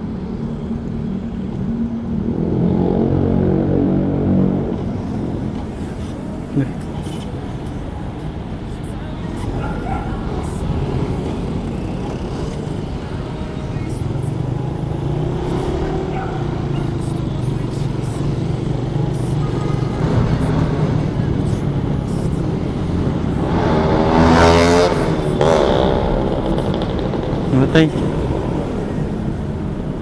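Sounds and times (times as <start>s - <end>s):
street traffic: 0.0s - 30.0s
motorcycle engine revving: 9.6s - 29.6s.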